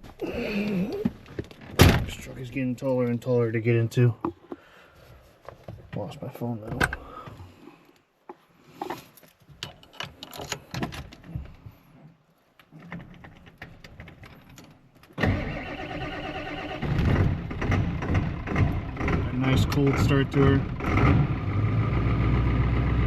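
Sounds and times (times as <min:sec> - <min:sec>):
clicks and rustles of handling: 0:07.9 - 0:15.2
diesel engine starting: 0:15.2 - 0:23.0.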